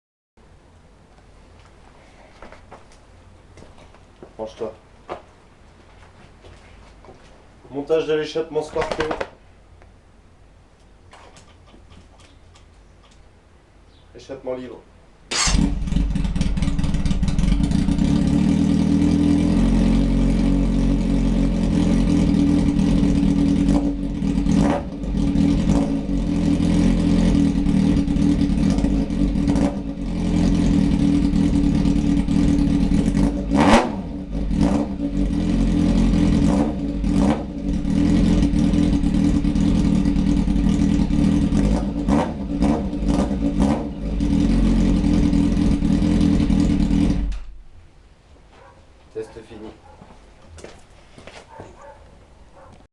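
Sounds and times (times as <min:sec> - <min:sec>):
motorcycle engine idling and revving: 0:15.3 - 0:47.6, 0:51.5 - 0:52.0.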